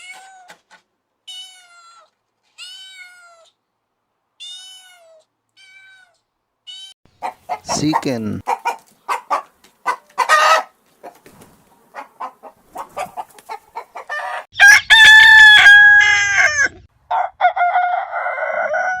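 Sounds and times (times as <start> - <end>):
chicken clucking: 7.2 - 15.0
rooster crowing: 14.1 - 19.0.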